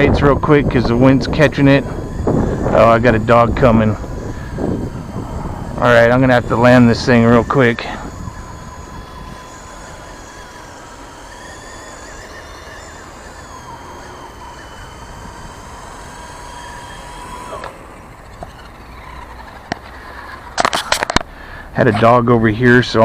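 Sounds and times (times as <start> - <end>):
low wind rumble: 0.0 - 12.5
model helicopter rotor whining: 0.0 - 23.0.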